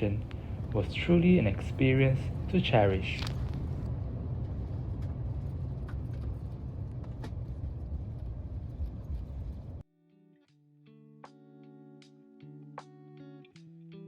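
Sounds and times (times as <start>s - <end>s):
vehicle interior rumble: 0.0s - 9.8s
soft music: 9.9s - 14.0s.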